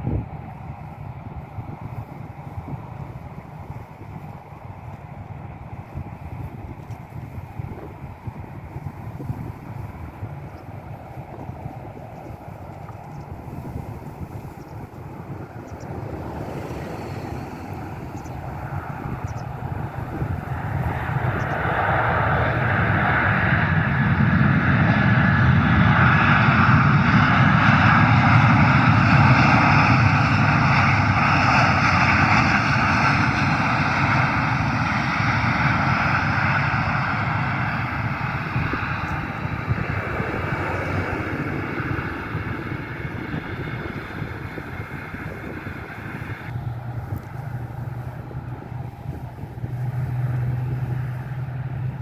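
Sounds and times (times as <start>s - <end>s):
airplane engines flying past: 0.0s - 52.0s.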